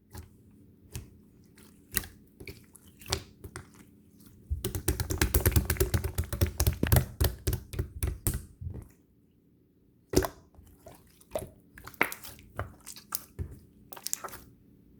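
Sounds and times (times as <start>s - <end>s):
sharp clicks and taps: 4.6s - 8.5s.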